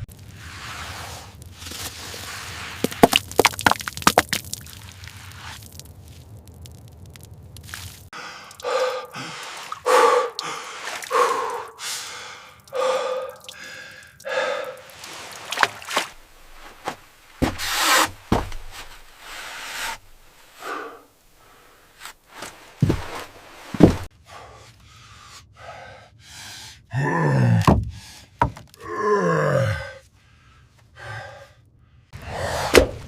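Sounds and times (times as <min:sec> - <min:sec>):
man breathing hard: 0:08.1 - 0:14.9, 0:24.1 - 0:27.0, 0:27.9 - 0:28.4, 0:29.7 - 0:32.8.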